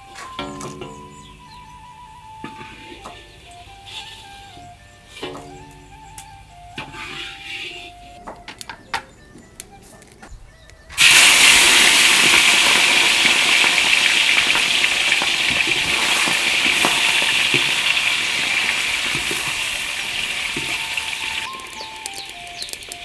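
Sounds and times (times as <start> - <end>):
food sizzling in hot oil: 11.0 - 23.0.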